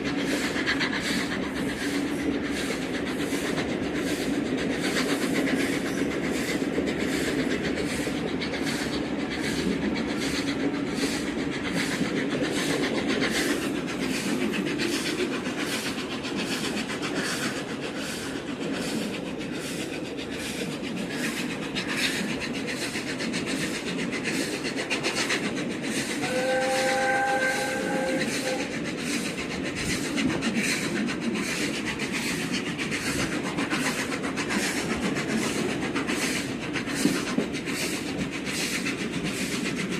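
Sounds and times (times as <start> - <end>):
train wheels clattering: 0.0 - 39.9
steam locomotive whistle: 26.2 - 28.8.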